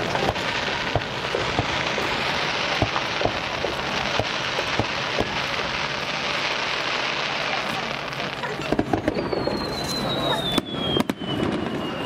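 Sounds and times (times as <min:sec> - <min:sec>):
sharp firework pops: 0:00.0 - 0:11.9
fireworks crackling: 0:00.0 - 0:12.0.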